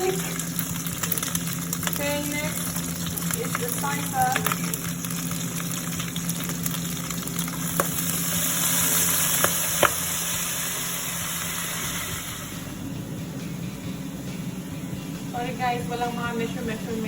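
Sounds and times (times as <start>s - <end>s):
food sizzling in hot oil: 0.0s - 12.9s.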